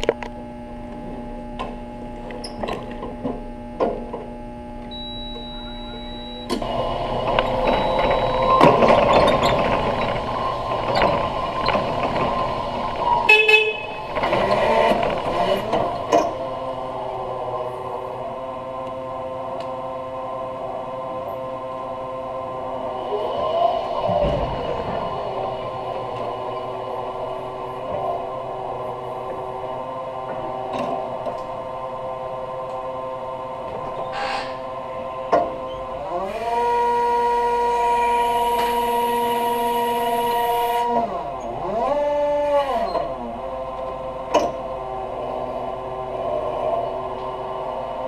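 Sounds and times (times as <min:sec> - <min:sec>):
forklift running: 0:00.0 - 0:48.0
forklift horn toot: 0:13.1 - 0:15.7, 0:36.3 - 0:43.2.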